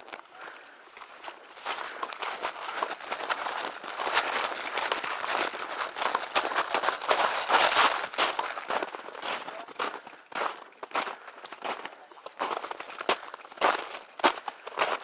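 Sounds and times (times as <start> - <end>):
footsteps crunching dry leaves: 0.4 - 11.6.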